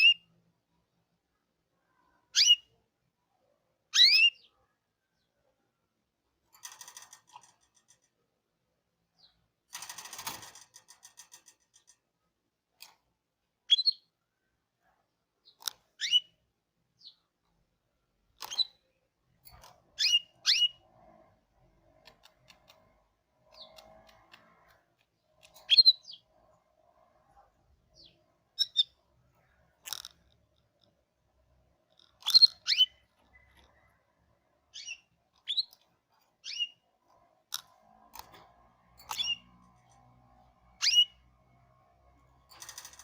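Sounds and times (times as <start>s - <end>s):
canary sharp chirps: 0.0s - 0.4s, 2.0s - 2.8s, 3.9s - 4.6s, 13.7s - 14.1s, 15.4s - 16.4s, 18.4s - 18.9s, 19.5s - 21.2s, 23.4s - 24.7s, 25.4s - 26.4s, 27.9s - 30.2s, 32.0s - 38.3s, 39.0s - 39.6s, 40.4s - 41.4s
canary rattling burst: 9.7s - 11.9s.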